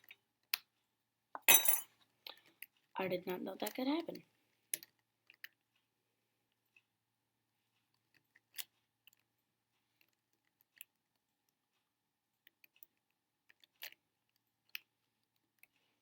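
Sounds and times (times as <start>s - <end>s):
plastic puzzle pieces clicking: 8.0s - 9.3s, 12.4s - 15.7s.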